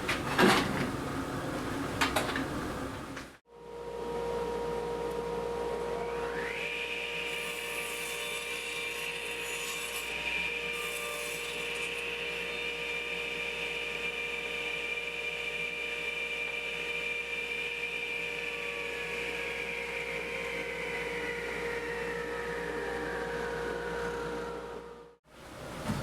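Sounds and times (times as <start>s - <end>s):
saw motor whining: 6.0s - 24.8s.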